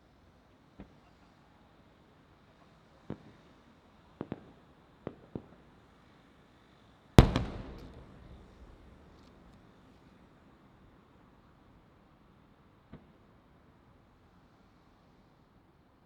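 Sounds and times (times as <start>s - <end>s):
firework shells bursting: 7.2s - 9.2s.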